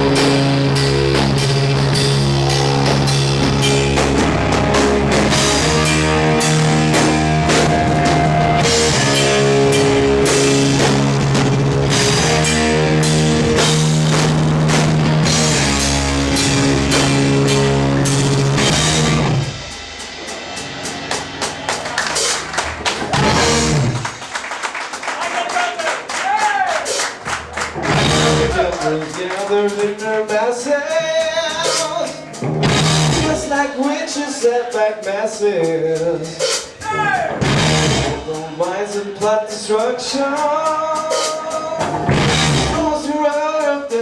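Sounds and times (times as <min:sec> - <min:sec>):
rock band playing: 0:00.0 - 0:44.0
audience clapping: 0:21.1 - 0:30.0.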